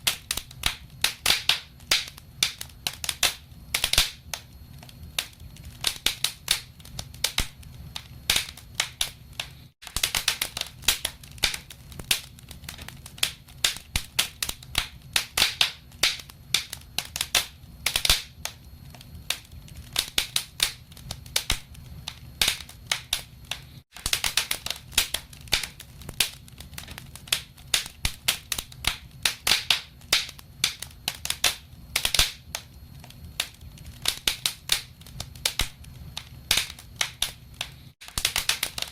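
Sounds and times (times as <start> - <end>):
low rumble of flames: 0.0 - 38.9
wood fire crackling and popping: 0.0 - 38.9.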